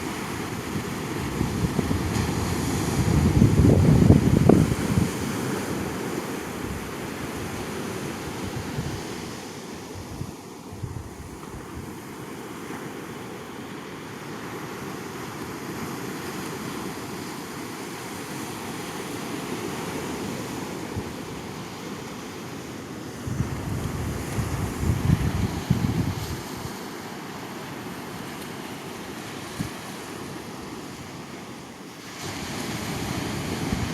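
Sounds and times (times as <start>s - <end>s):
wind rumbling on microphone: 0.0s - 12.0s, 23.2s - 26.8s, 32.2s - 33.9s
ocean surf washing: 0.0s - 33.9s.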